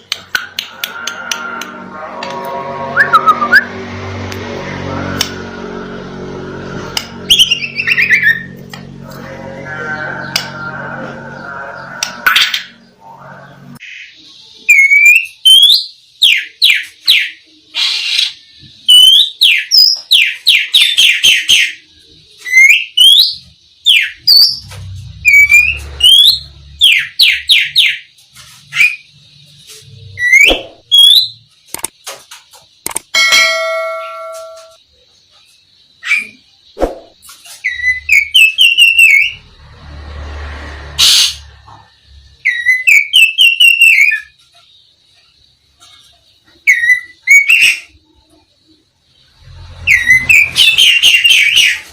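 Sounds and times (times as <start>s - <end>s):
magpie-robin singing: 7.3s - 8.5s, 13.8s - 24.6s, 42.4s - 44.5s, 46.5s - 48.0s.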